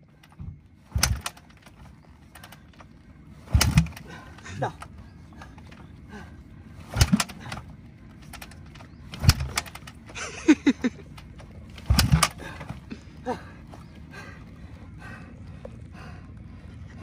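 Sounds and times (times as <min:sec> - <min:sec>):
motorbike kickstarter thumps: 0:00.2 - 0:04.2, 0:06.8 - 0:10.1, 0:11.3 - 0:12.9.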